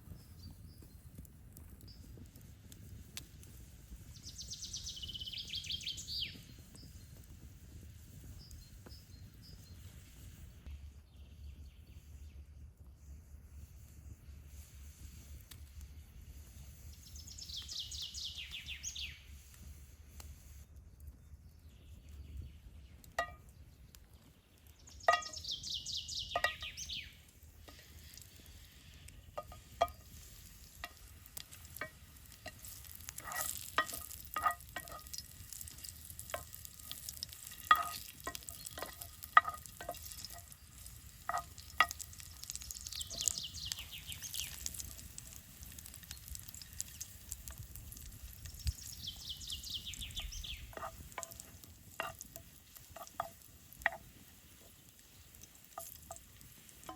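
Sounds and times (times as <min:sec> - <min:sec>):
metal utensil clinking in pan: 0:33.2 - 0:35.2, 0:37.5 - 0:40.4.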